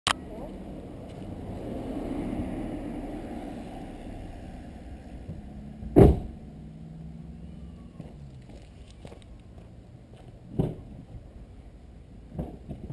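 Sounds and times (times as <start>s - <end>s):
car engine low rumble: 0.1s - 12.9s
loud thump: 5.3s - 6.4s.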